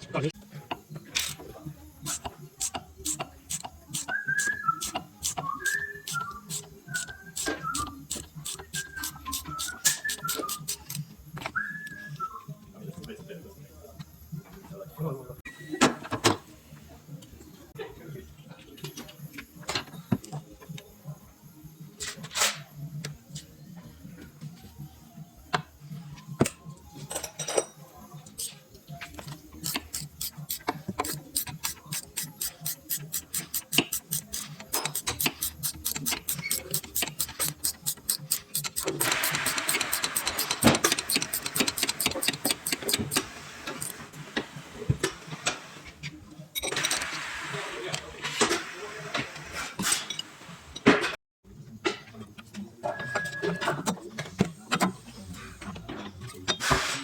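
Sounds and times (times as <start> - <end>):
hand tools clicking and knocking: 0.6 - 11.6, 26.4 - 44.0.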